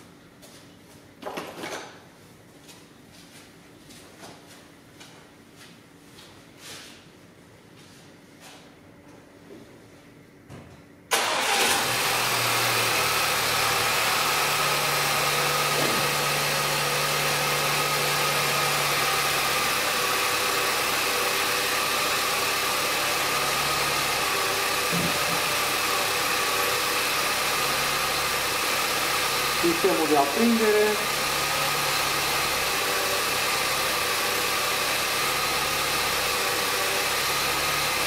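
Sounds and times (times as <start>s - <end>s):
car engine cranking and starting: 11.1s - 38.0s
car engine idling: 11.2s - 38.0s.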